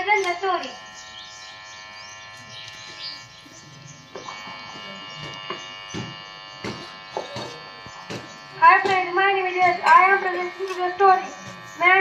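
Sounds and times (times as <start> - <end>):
electrical buzz: 0.0 - 12.0
knocks: 5.5 - 10.0.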